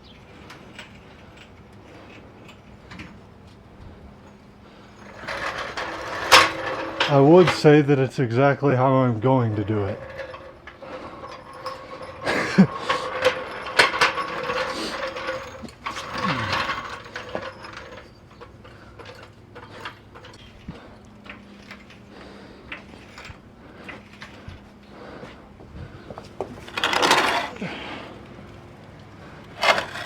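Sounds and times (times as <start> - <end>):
metal clanks and ratcheting: 4.2 - 25.3, 26.1 - 27.9, 29.2 - 30.0
short falling creaks: 9.4 - 20.4.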